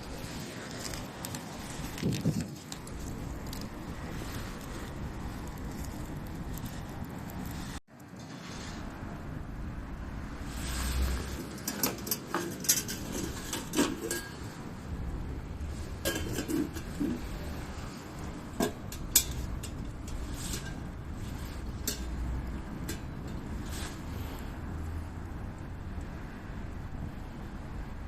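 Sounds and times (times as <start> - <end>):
wind on microphone: 0.0 - 7.8
metal cookware clinking: 11.4 - 14.6, 16.0 - 17.2, 18.5 - 24.0.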